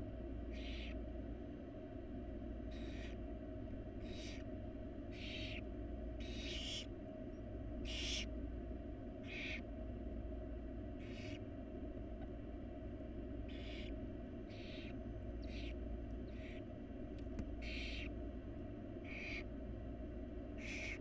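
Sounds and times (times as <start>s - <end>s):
steady low hum: 0.0s - 21.0s
owl nestlings hissing calls: 0.5s - 1.0s, 2.7s - 3.2s, 4.0s - 6.9s, 7.8s - 8.3s, 9.2s - 9.7s, 11.0s - 11.4s, 13.5s - 16.7s, 17.5s - 18.2s, 19.0s - 19.5s, 20.6s - 21.0s.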